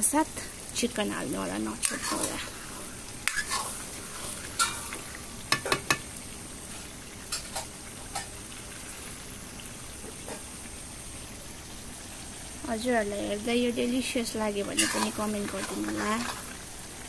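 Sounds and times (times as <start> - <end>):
food sizzling in a pan: 0.0 - 17.0
ladle knocking and scraping pan: 5.5 - 6.1, 14.8 - 16.4.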